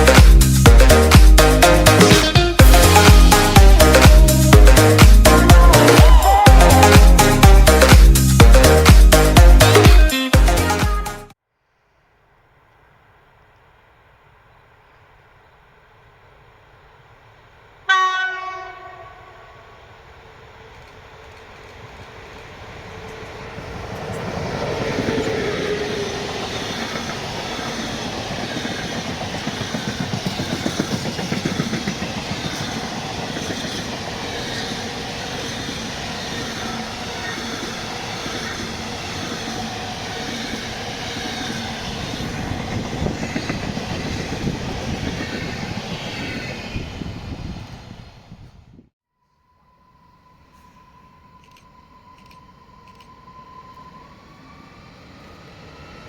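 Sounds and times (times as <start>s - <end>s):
train wheels clattering on rails: 20.7s - 46.7s.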